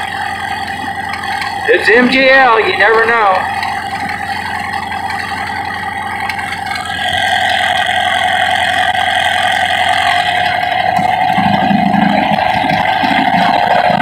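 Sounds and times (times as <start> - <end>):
light aircraft engine idling: 0.0 - 14.0.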